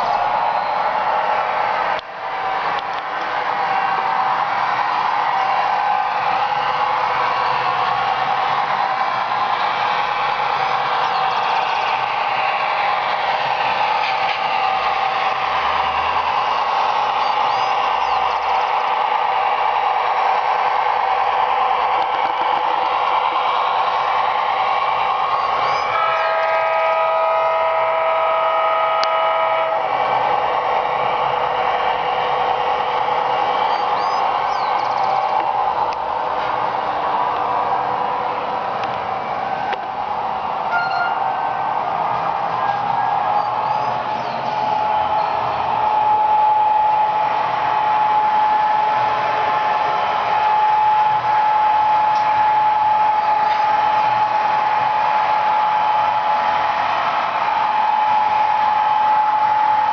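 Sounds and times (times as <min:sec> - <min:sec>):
model train running on track: 0:00.0 - 0:59.9
multi-note air horn: 0:25.5 - 0:30.4, 0:40.7 - 0:41.2.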